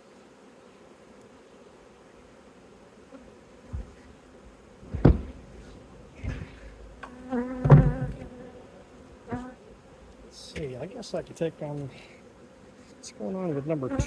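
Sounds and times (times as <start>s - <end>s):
honeybees buzzing: 0.0s - 14.0s
sharp knocks: 4.8s - 8.3s.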